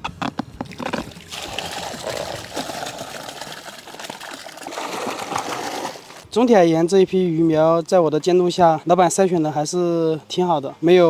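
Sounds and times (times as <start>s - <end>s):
water pouring and splashing: 0.1s - 6.4s.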